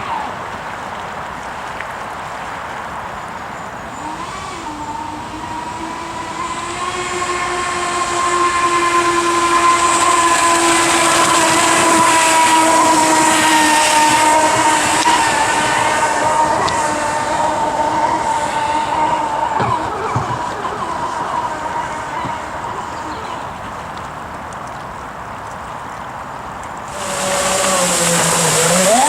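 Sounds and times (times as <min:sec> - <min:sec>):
booster jets whining: 0:03.5 - 0:24.4, 0:26.9 - 0:29.0
high hiss: 0:26.9 - 0:29.0.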